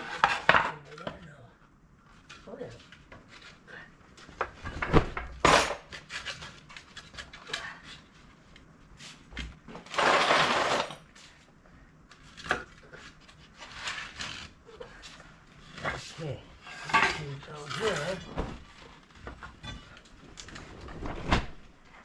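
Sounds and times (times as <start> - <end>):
metal clanks and knocks of tools: 16.7 - 18.4.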